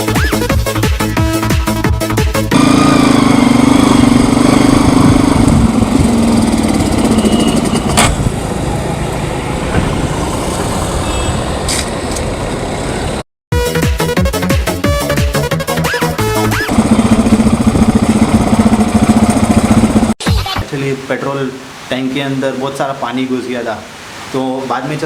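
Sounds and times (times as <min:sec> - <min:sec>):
motorcycle engine running: 0:01.3 - 0:10.3, 0:16.1 - 0:20.2.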